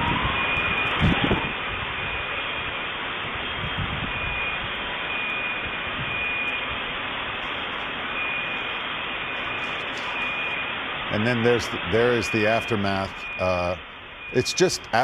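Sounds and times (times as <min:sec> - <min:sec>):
steady rushing noise: 0:00.0 - 0:15.0
faint high beep: 0:04.1 - 0:06.6, 0:08.1 - 0:15.0.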